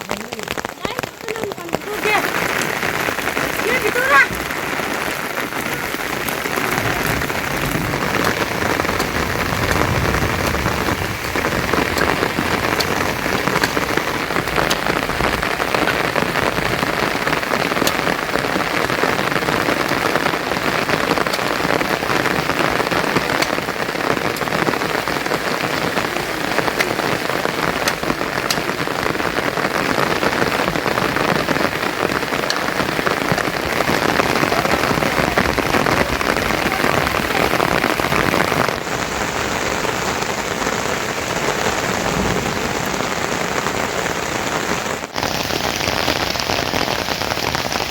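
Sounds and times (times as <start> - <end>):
raindrops ticking: 0.0 - 47.9
steady rain falling: 0.0 - 47.9.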